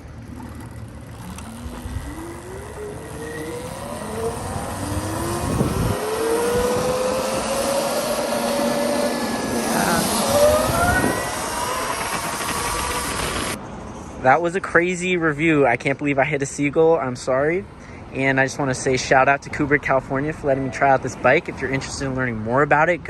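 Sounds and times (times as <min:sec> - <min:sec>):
electric motor whining: 0:00.0 - 0:13.6
wind rumbling on microphone: 0:00.0 - 0:13.6.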